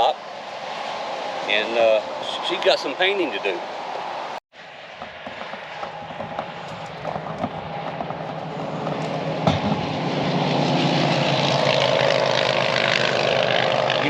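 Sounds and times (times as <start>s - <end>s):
vehicle engine running: 4.8s - 14.0s.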